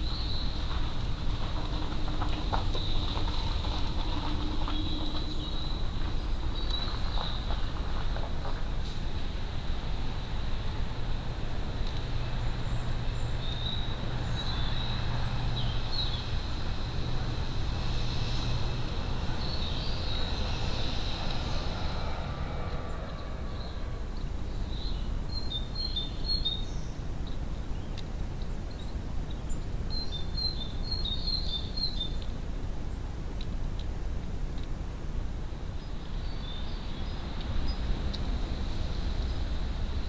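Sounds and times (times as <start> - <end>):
steady background hiss: 0.0 - 40.0
small birds chirping: 11.4 - 33.0, 35.7 - 38.6.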